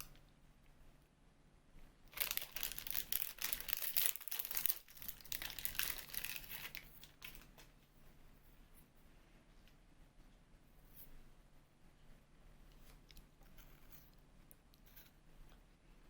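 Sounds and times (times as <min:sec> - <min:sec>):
packaging crumpling and tearing: 0:02.1 - 0:07.6.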